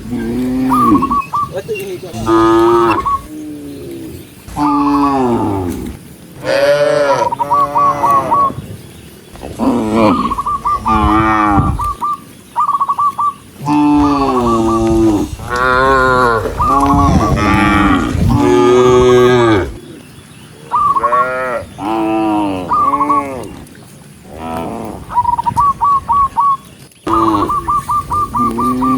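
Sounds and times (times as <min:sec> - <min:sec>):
cattle mooing: 0:00.0 - 0:01.2, 0:02.1 - 0:08.6, 0:09.3 - 0:12.0, 0:13.6 - 0:19.8, 0:21.0 - 0:23.6, 0:27.1 - 0:28.9.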